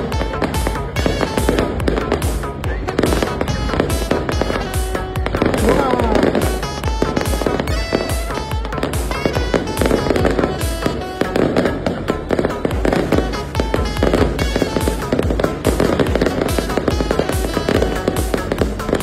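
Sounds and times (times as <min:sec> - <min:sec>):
fireworks bursting and crackling: 0:00.0 - 0:19.0
music with steady beat: 0:00.0 - 0:19.0.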